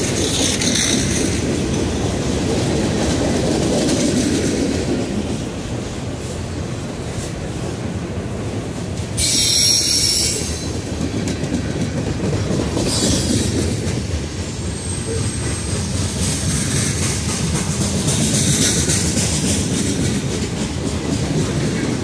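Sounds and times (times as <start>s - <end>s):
train wheels rumbling on rail: 0.0s - 22.0s
high wheel squeal: 9.2s - 10.7s.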